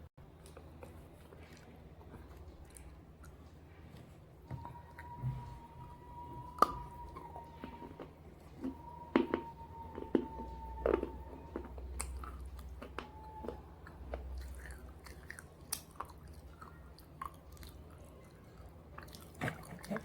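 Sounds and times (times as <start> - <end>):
crunchy chewing: 6.6 - 20.0.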